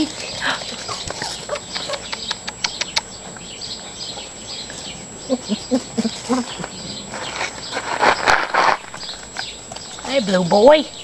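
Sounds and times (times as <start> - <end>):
sharp clicks: 1.7 - 3.1.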